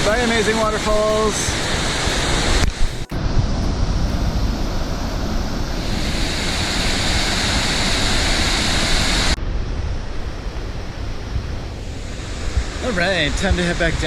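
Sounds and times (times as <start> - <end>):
waterfall rushing: 0.0 - 9.4.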